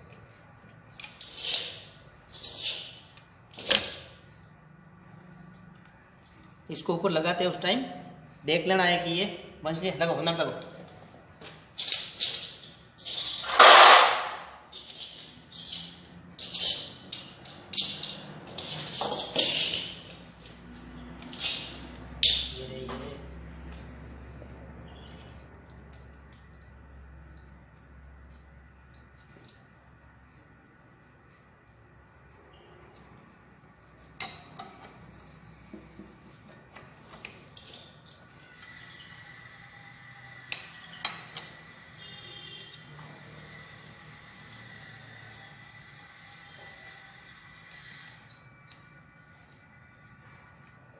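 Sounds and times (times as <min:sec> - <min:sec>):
metal parts clattering: 0:11.8 - 0:20.0.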